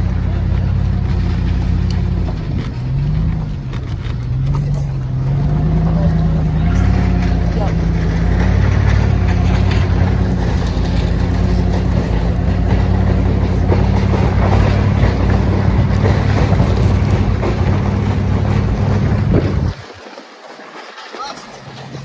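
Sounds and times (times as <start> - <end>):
vehicle engine running: 0.0 - 19.9
road noise: 0.0 - 20.5
wind noise on microphone: 6.8 - 20.0.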